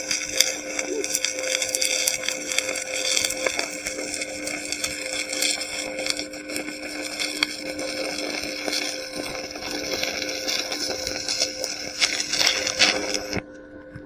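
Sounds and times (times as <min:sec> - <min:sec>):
welding arc crackling sizzle: 0:00.0 - 0:13.4.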